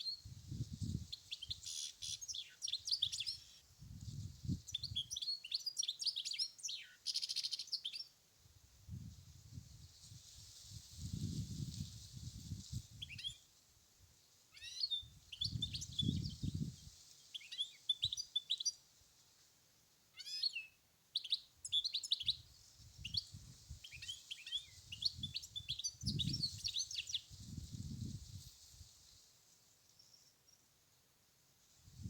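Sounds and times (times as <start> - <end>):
wind rumble on microphone: 0.2 - 1.2, 3.8 - 5.2, 8.5 - 13.4, 15.1 - 17.0, 22.3 - 24.1, 24.7 - 29.0, 31.8 - 32.0
goldfinch twittering song: 1.1 - 3.6, 14.6 - 16.5, 17.3 - 18.8, 20.2 - 22.4, 23.0 - 27.3.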